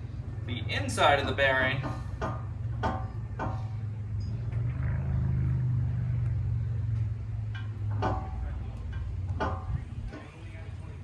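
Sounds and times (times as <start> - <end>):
low rumble: 0.0 - 11.0
light clicks and knocks: 1.2 - 4.7, 6.9 - 10.6.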